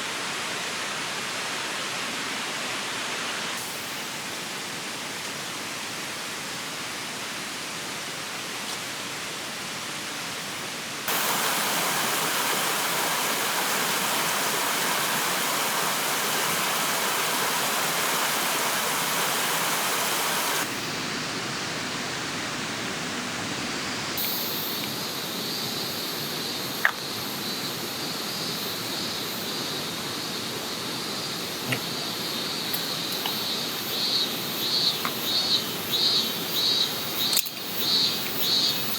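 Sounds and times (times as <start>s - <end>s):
river rushing: 11.0s - 22.6s
insects chirping: 11.1s - 21.1s, 24.2s - 38.9s.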